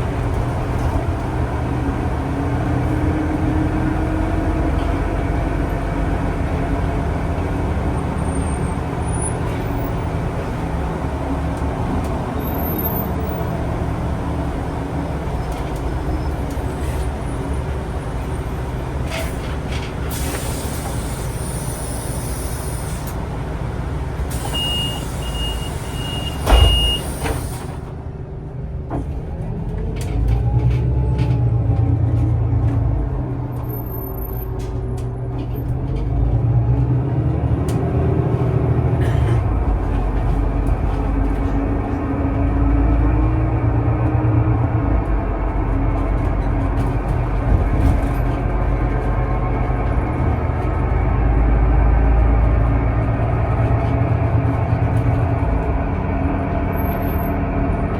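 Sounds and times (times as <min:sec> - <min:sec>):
bus engine rumbling: 0:00.0 - 0:57.9
door thump: 0:26.4 - 0:27.0.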